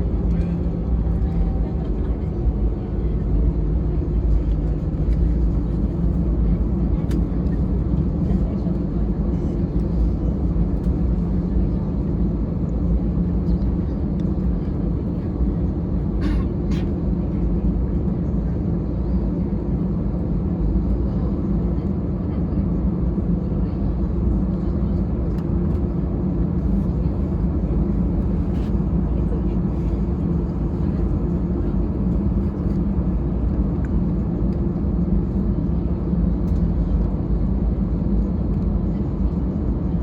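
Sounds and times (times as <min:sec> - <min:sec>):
airplane cabin engine rumble: 0:00.0 - 0:40.0.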